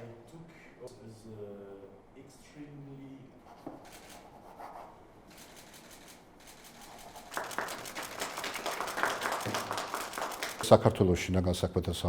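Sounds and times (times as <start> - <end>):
crowd applauding: 6.8 - 11.0.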